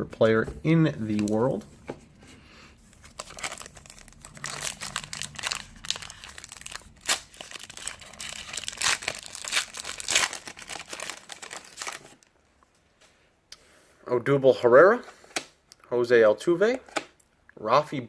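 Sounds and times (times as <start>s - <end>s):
foil wrapper crinkling and tearing: 3.0s - 12.3s.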